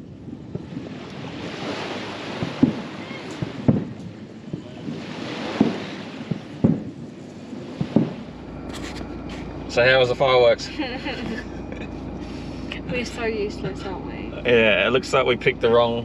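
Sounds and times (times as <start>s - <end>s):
distant fireworks booming: 0.0s - 9.8s.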